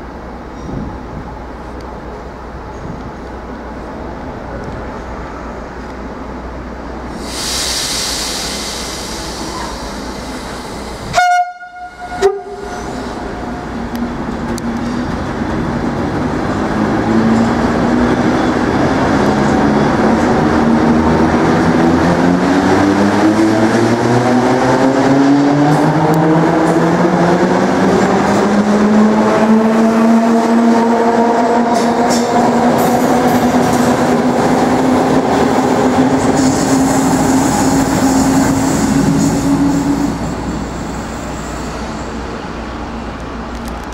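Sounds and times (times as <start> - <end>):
train horn blasts: 11.1 - 13.7
train wheels clattering on rails: 25.5 - 40.8.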